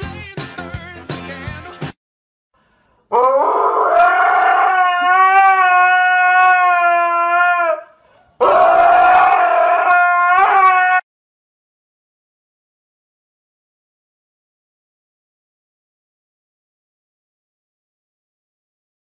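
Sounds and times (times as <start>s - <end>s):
dog howling: 3.1s - 11.0s.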